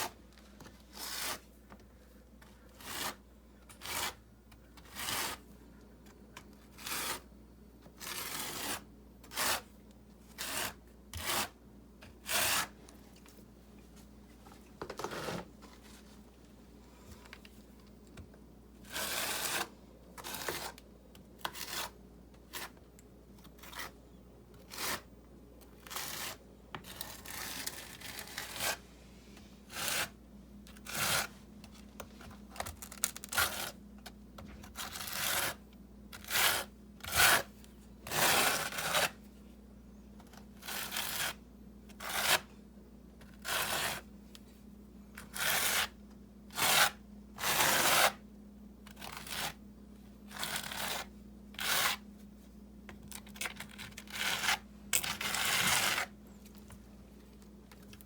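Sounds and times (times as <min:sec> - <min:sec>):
faint steady hum: 0:00.0 - 0:58.0
scraping in wet mortar: 0:00.9 - 0:01.5.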